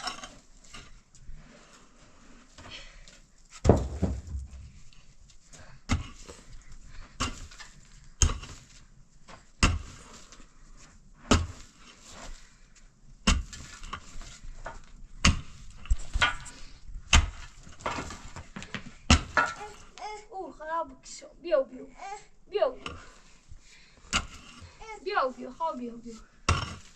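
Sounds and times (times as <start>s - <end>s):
sharp knocks: 3.6s - 4.8s.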